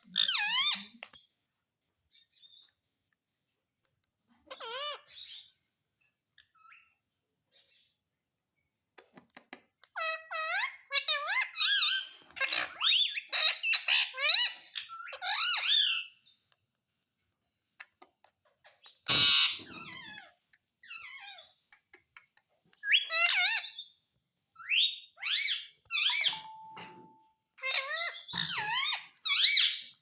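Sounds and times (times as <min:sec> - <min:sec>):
parrot squeaky calls: 0:00.1 - 0:01.0, 0:04.4 - 0:05.5, 0:10.0 - 0:16.2, 0:18.9 - 0:21.6, 0:22.8 - 0:24.0, 0:24.6 - 0:27.0, 0:27.6 - 0:30.0.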